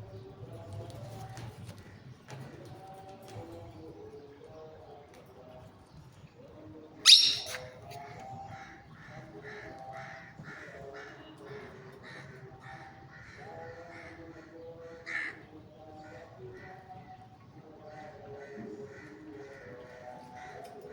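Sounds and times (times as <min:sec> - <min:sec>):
parrot repeated calls: 0:07.1 - 0:07.7
parrot squawking: 0:07.1 - 0:07.7.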